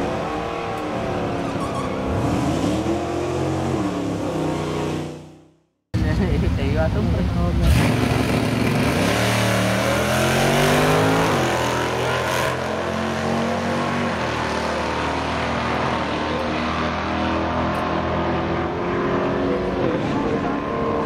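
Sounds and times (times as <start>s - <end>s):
drag car engine accelerating: 7.6s - 21.0s.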